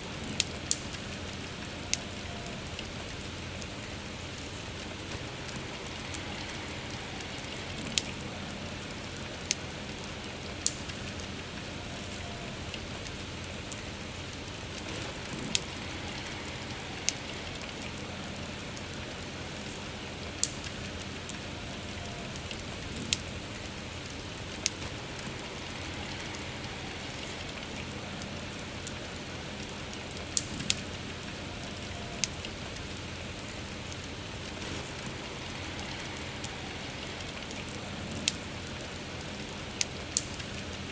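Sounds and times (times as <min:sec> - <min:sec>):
soft steady rain: 0:00.0 - 0:40.9
wood fire crackling: 0:00.0 - 0:40.9.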